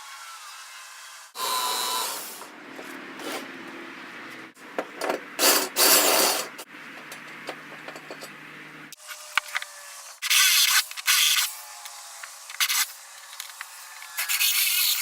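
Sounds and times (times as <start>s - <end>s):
metal scraping hiss and crackle: 5.4s - 6.7s.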